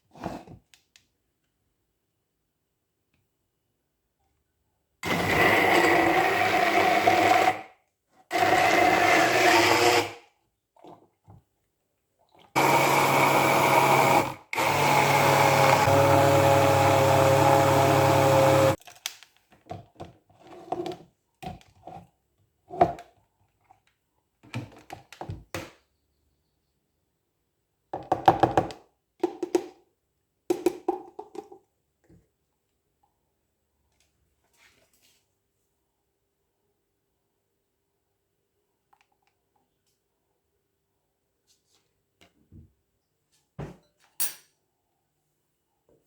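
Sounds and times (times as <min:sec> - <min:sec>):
electric blender motor: 0:05.0 - 0:07.6, 0:08.3 - 0:10.2, 0:12.6 - 0:18.8.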